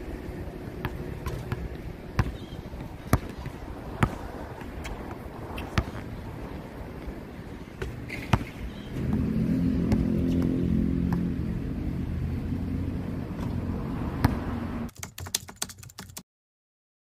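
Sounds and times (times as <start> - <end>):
vehicle engine running: 9.0 - 14.9.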